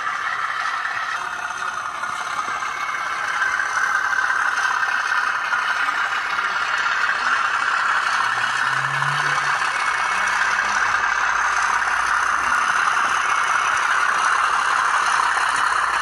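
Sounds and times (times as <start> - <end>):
model train engine sound from speaker: 0.0 - 16.0
rattle of wheels and mechanism: 0.0 - 16.0
low hum: 7.1 - 14.1.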